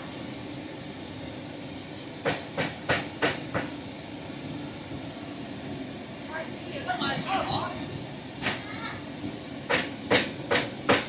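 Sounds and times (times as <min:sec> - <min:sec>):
sharp knocks: 0:02.2 - 0:03.7, 0:09.7 - 0:11.0.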